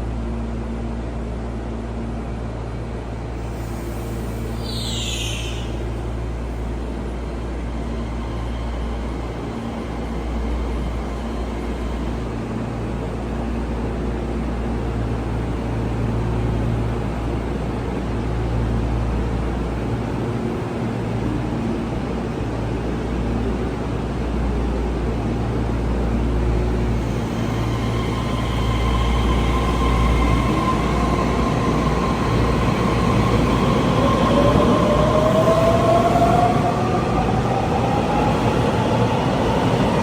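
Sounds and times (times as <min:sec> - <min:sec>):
train rumbling: 0:00.0 - 0:40.0.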